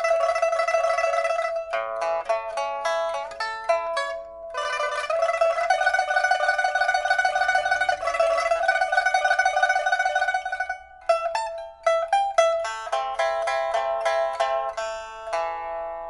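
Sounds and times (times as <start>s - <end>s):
pipa plucked notes: 0.0s - 16.0s.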